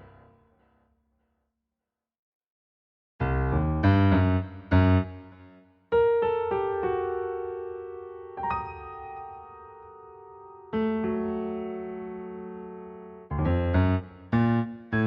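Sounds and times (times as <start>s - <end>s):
piano chords: 6.0s - 15.0s.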